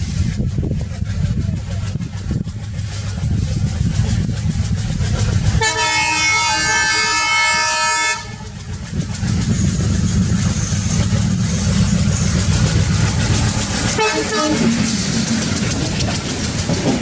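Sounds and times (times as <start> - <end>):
train rumbling past: 0.0 - 17.0
locomotive horn blast: 5.6 - 8.5, 13.9 - 15.0.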